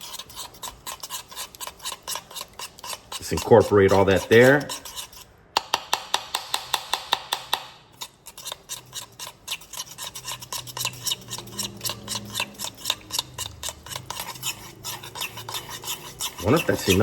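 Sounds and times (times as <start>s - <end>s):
utensil stirring thick mixture: 0.0s - 17.0s
utensil clicking against bowl: 5.6s - 8.5s.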